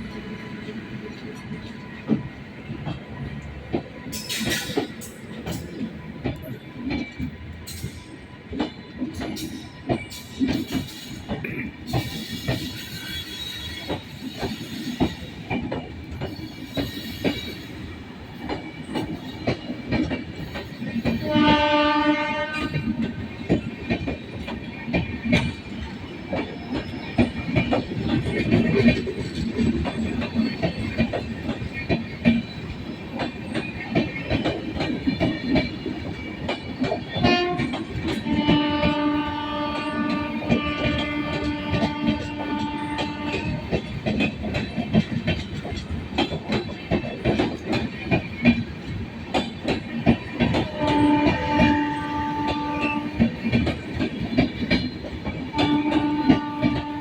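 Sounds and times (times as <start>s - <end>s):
train wheels clattering: 0.0s - 57.0s
train horn blasts: 21.2s - 23.1s, 37.2s - 43.8s, 50.5s - 53.4s, 55.5s - 57.0s.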